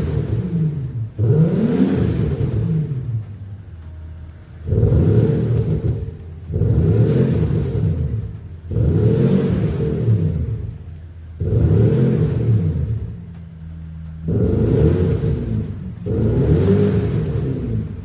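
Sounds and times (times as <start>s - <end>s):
car engine revving: 0.0s - 18.0s
deep exhaust note from speaker system: 0.0s - 18.0s.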